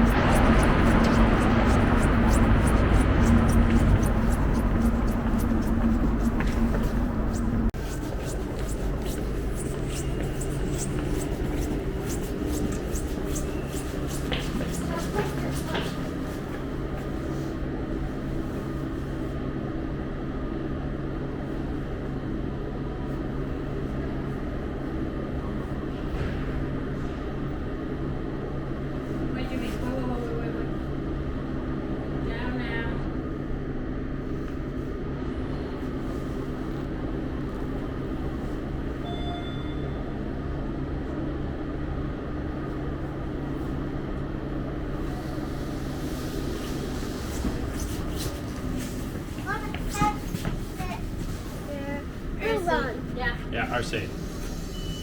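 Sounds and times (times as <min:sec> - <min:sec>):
low mechanical hum: 0:00.0 - 0:55.0
short high beep: 0:39.0 - 0:40.0.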